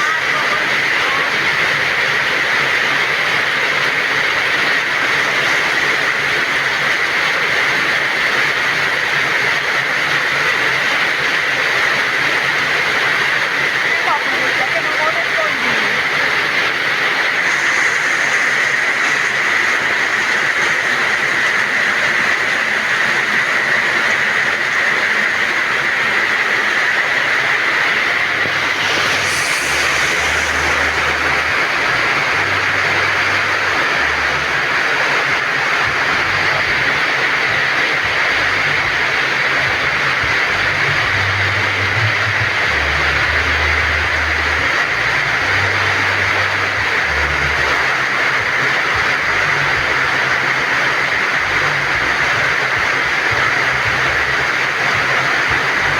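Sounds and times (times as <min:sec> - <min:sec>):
heavy rain falling: 0:00.0 - 0:55.9
low rumbling: 0:16.1 - 0:55.9.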